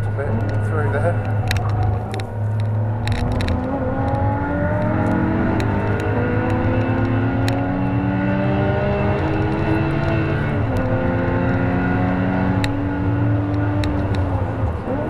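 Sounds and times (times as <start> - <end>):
car engine at full throttle: 0.0 - 15.0.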